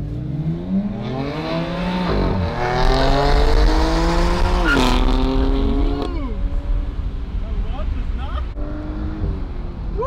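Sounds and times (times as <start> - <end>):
car engine accelerating hard: 0.0 - 7.4.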